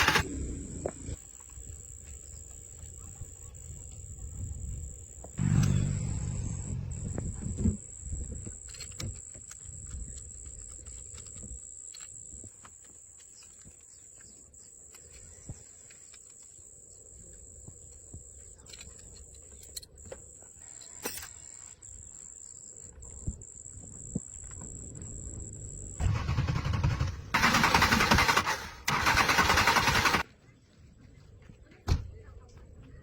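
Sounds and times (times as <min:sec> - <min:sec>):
car engine cranking and starting: 0:26.0 - 0:30.2.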